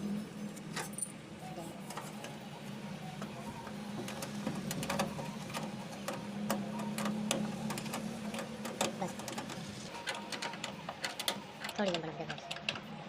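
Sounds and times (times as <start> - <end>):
metal parts clicking and tapping: 3.2 - 13.0.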